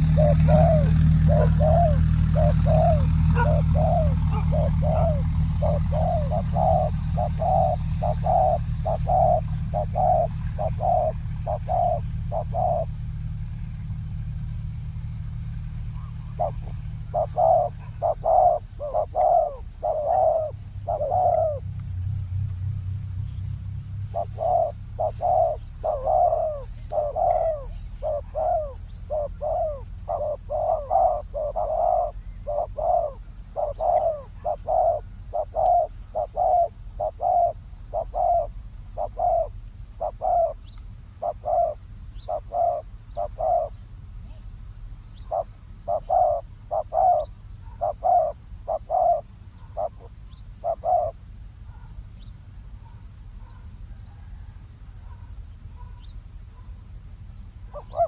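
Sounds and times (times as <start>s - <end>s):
doves cooing: 0.0s - 56.8s, 57.5s - 58.0s
low steady rumble: 0.0s - 58.0s.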